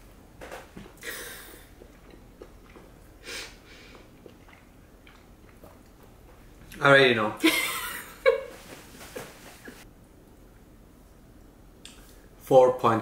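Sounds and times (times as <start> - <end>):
wet mouth clicks chewing: 1.8 - 3.2, 3.9 - 6.4.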